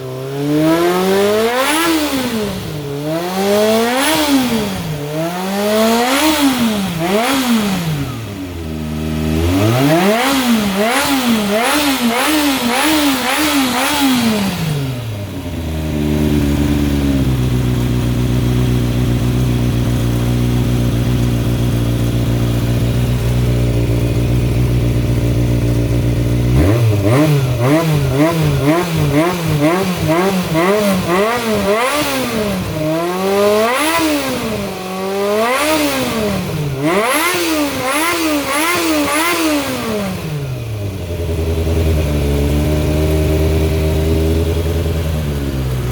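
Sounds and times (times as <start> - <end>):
motorcycle engine idling: 0.0 - 45.9
motorcycle engine revving: 0.0 - 45.9.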